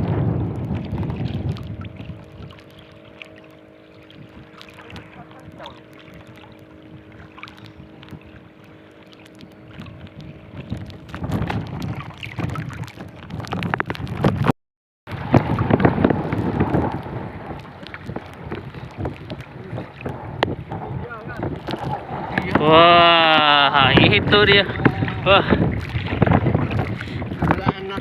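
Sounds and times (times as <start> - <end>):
wind buffeting microphone: 0.0 - 14.5, 15.1 - 28.0
water around a boat: 0.0 - 28.0.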